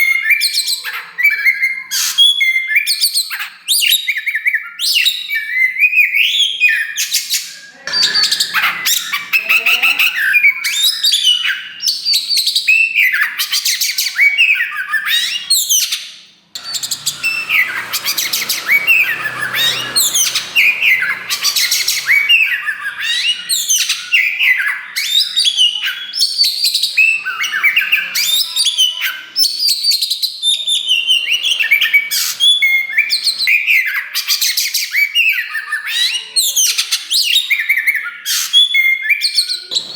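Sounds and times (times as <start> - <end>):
bird singing varied whistles: 3.9 - 15.9
bird rasping notes: 7.6 - 11.0, 16.6 - 29.1.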